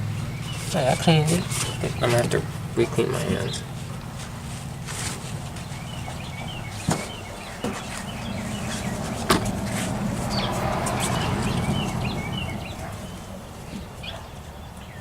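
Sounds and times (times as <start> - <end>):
birds chirping: 0.0 - 15.0
low hum: 5.3 - 13.8
sharp knocks: 9.0 - 9.9.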